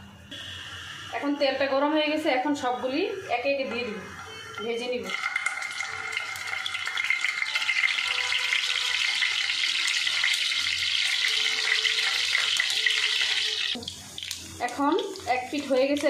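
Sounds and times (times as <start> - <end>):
food sizzling in hot oil: 4.2 - 16.0.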